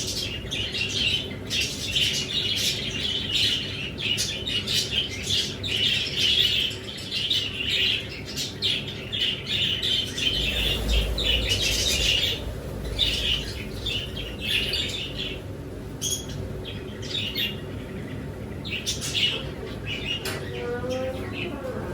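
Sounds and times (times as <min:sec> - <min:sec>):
small birds chirping: 0:00.0 - 0:21.6
low rumble: 0:09.9 - 0:18.4.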